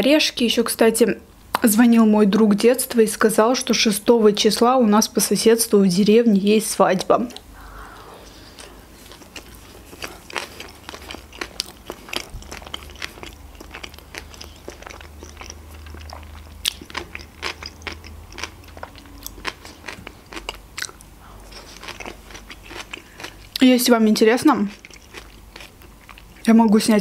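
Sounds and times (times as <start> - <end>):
person chewing: 7.4 - 23.6, 24.6 - 26.5.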